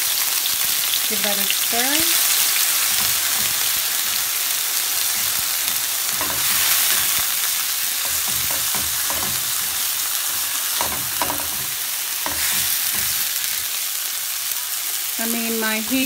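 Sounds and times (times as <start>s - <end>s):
vegetables sizzling in oil: 0.0s - 16.0s
spatula scraping and tapping pan: 2.7s - 4.3s, 5.0s - 13.8s.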